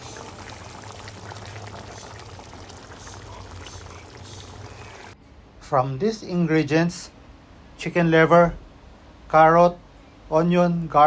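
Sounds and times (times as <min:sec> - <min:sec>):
food sizzling in a pan: 0:00.0 - 0:05.2.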